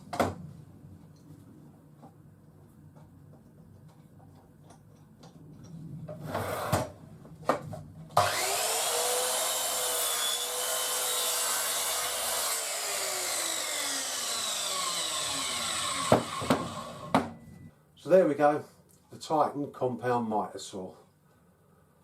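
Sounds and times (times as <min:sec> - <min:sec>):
mitre saw cutting board: 0:08.2 - 0:17.3.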